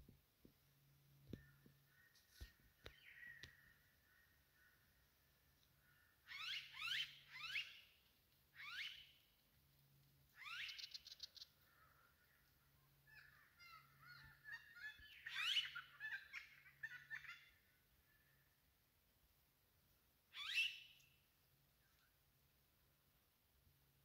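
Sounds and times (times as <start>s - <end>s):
birds making loud sweeping calls: 6.2s - 7.8s, 8.6s - 9.1s, 13.1s - 17.6s, 20.3s - 20.8s.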